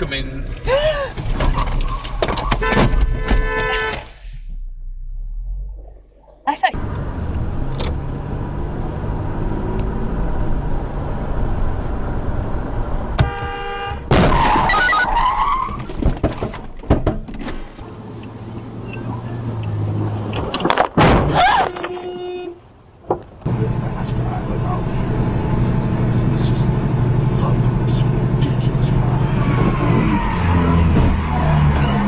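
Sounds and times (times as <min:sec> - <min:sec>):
vehicle engine: 0:00.0 - 0:21.0, 0:22.6 - 0:32.0
road noise: 0:00.0 - 0:32.0.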